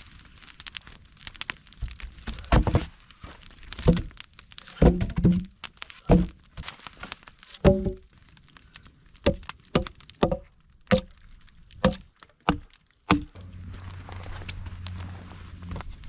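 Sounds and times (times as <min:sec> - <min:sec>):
wood being chopped: 0:02.5 - 0:02.9, 0:03.8 - 0:04.1, 0:04.8 - 0:06.4, 0:07.6 - 0:08.0, 0:09.2 - 0:11.1, 0:11.8 - 0:13.5
low hum: 0:13.1 - 0:16.0.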